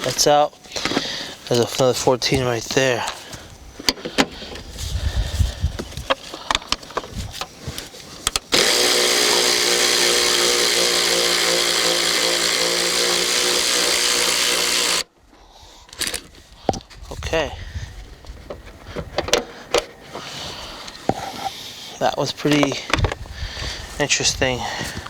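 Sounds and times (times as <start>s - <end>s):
cordless power tool running: 8.5s - 15.1s.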